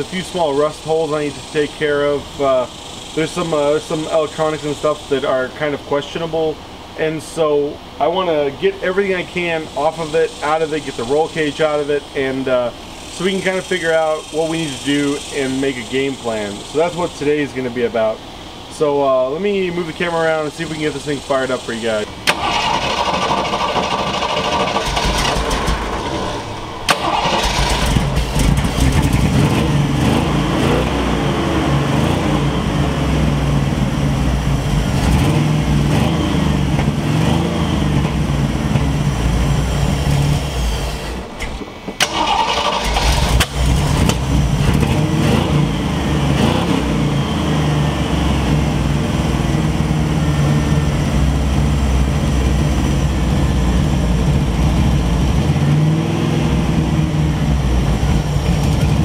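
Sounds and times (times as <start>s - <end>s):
car engine running and faltering: 20.5s - 59.0s.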